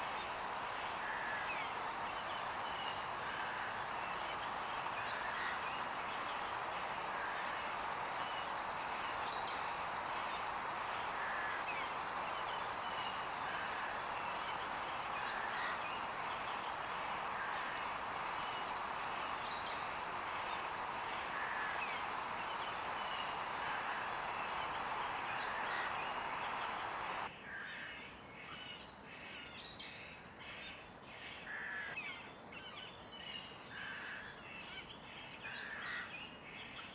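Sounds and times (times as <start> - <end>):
songbirds chirping: 0.0 - 27.3
steady background hiss: 0.0 - 27.3.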